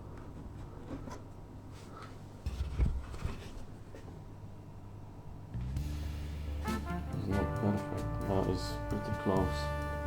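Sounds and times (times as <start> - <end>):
light rubbing and rustling: 0.2 - 4.2.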